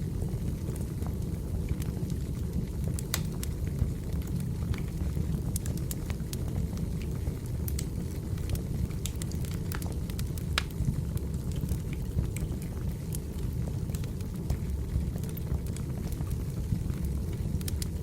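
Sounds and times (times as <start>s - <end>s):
firewood crackling: 1.4s - 18.0s.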